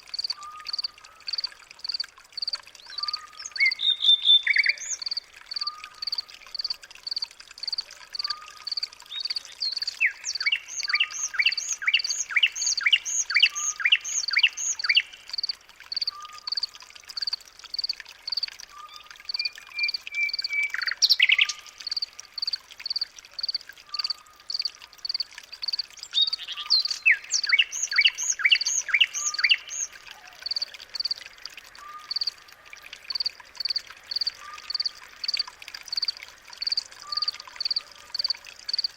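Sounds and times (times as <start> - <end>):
bird high chirp: 9.2 - 15.1, 26.1 - 29.9.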